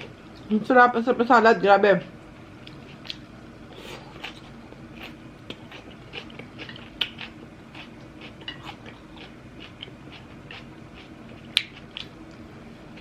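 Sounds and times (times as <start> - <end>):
low steady hum: 0.0 - 13.0
person chewing: 2.6 - 13.0.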